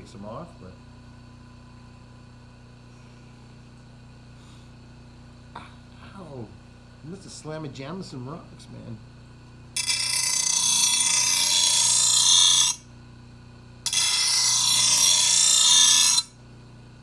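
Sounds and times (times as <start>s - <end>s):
grinder grinding steel blade: 9.8s - 12.8s, 13.9s - 16.3s.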